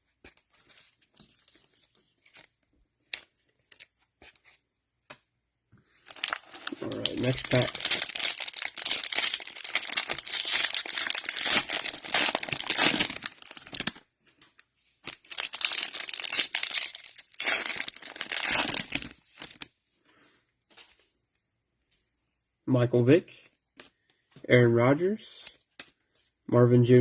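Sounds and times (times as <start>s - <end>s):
cellophane wrapper crinkling: 6.0s - 19.7s.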